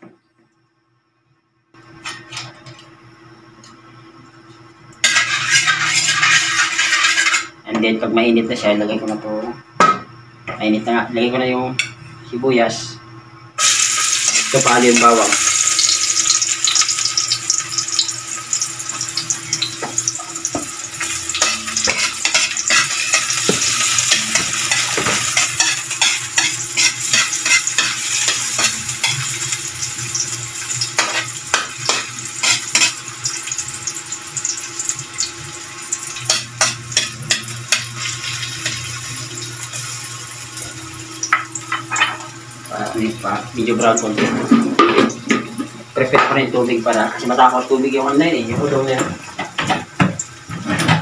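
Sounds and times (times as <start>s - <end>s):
metal spatula scraping a wok: 5.0s - 7.5s, 21.3s - 29.3s
onion and garlic sizzling in oil: 5.0s - 7.6s, 13.6s - 50.8s.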